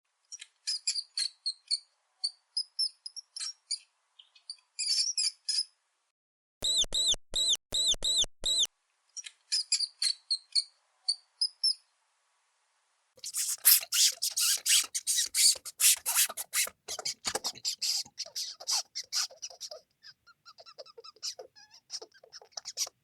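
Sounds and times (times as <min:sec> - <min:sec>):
mouse squeaking: 0:13.2 - 0:23.0.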